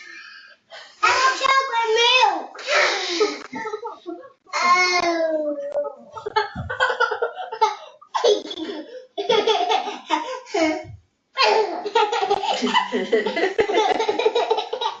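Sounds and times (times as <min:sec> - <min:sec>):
baby laughing: 0:11.4 - 0:15.0.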